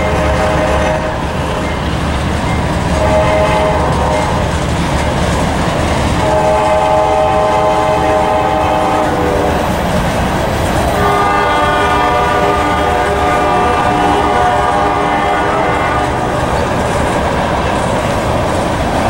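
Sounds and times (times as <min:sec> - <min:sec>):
distant locomotive horn: 0:00.0 - 0:01.8, 0:02.8 - 0:04.6, 0:06.0 - 0:10.1, 0:10.8 - 0:17.2
freight train wheels on rails: 0:00.0 - 0:19.0.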